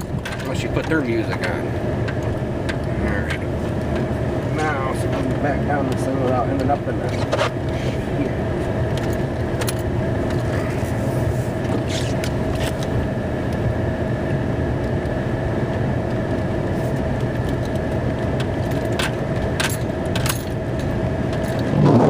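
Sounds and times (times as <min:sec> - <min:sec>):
light clicks and rattles: 0:00.0 - 0:07.8
steady whine: 0:00.0 - 0:22.0
truck engine rumble: 0:00.0 - 0:22.0.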